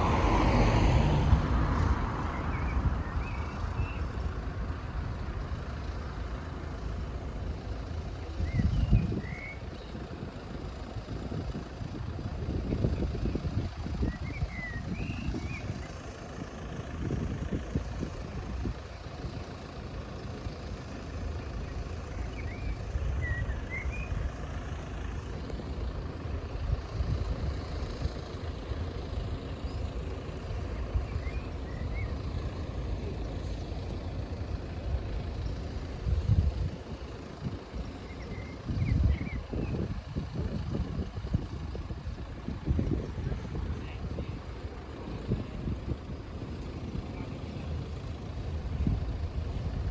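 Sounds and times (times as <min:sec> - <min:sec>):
vehicle rumble: 0:00.0 - 0:49.9.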